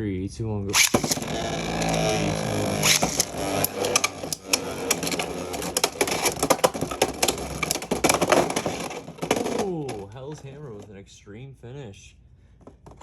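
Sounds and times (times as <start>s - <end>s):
spinning tops whirring: 0.7s - 10.0s
tops clacking together: 0.7s - 10.9s.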